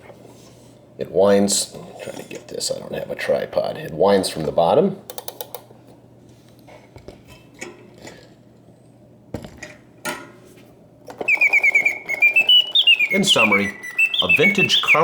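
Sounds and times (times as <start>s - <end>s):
mechanical bird whistle song: 11.2s - 15.0s.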